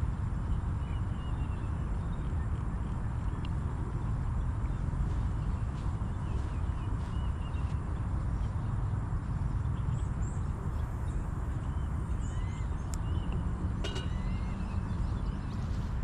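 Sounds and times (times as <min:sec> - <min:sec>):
bird chirps: 0:09.6 - 0:16.0.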